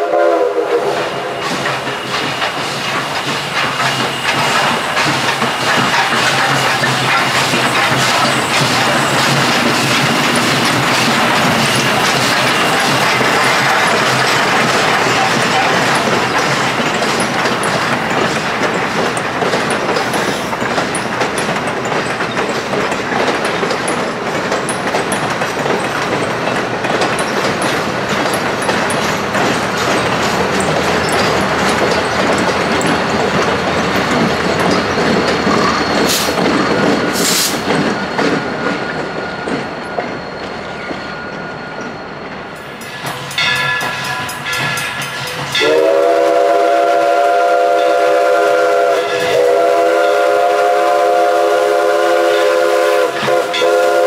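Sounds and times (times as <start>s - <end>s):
train whistle: 0.0s - 2.0s, 12.4s - 16.2s, 45.4s - 54.0s
train wheels clicking over rail joints: 0.7s - 54.0s.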